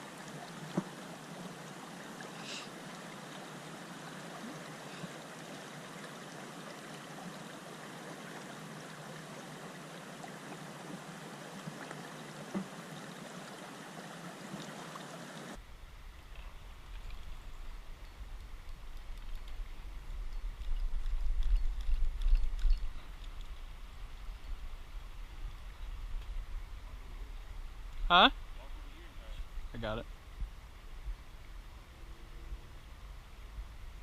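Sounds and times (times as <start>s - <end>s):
river water rushing over rocks: 0.0s - 15.6s.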